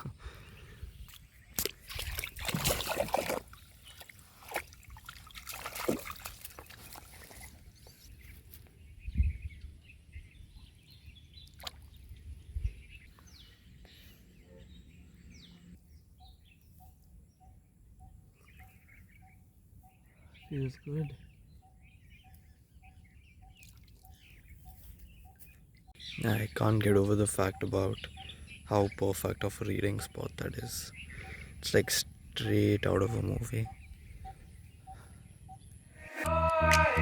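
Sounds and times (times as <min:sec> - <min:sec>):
birds chirping faintly: 0:00.0 - 0:36.0
water sloshing and splashing: 0:01.1 - 0:07.7, 0:11.4 - 0:12.2.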